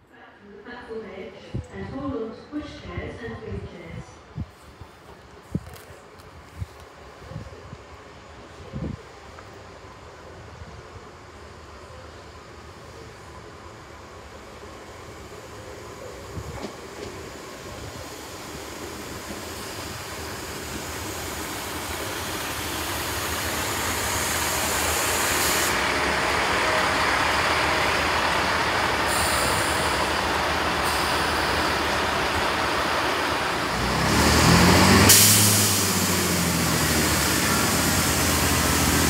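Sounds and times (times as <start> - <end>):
diesel train approaching: 0.0 - 39.0
high hiss: 17.5 - 33.6.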